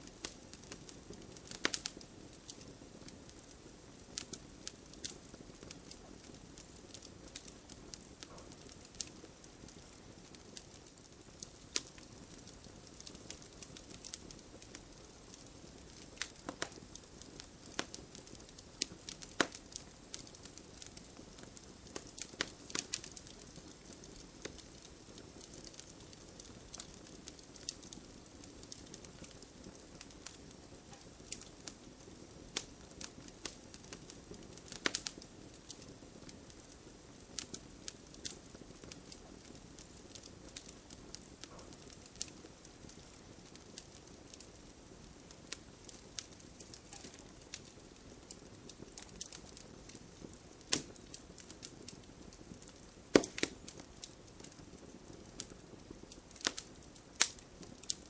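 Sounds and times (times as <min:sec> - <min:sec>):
steady fire hiss: 0:00.0 - 0:58.0
wood fire crackling: 0:00.0 - 0:58.0.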